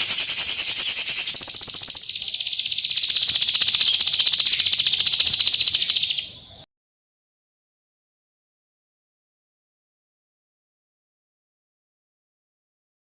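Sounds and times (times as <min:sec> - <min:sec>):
kingfisher rattling trill: 0:00.0 - 0:06.4.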